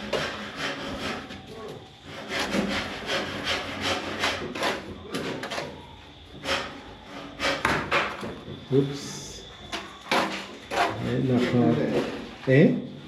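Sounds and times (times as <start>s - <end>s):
hand tool rasping: 2.0s - 5.6s, 10.1s - 12.3s.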